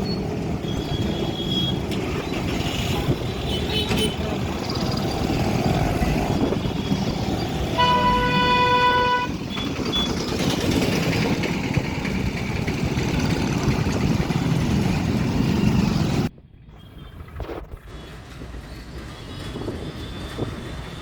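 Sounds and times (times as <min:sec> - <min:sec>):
heavy road traffic: 0:00.0 - 0:21.0
vehicle horn: 0:02.8 - 0:04.3, 0:07.7 - 0:09.4.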